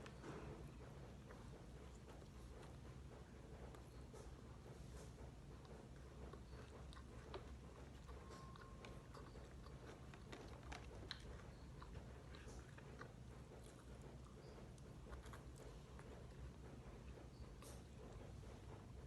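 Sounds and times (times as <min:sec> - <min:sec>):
low steady hum: 0:00.0 - 0:19.0
person chewing: 0:05.6 - 0:18.9.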